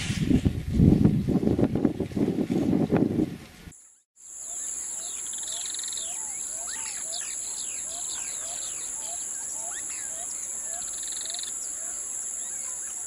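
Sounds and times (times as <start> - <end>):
wind rumbling on microphone: 0.0 - 3.8
birds chirping: 3.8 - 13.0.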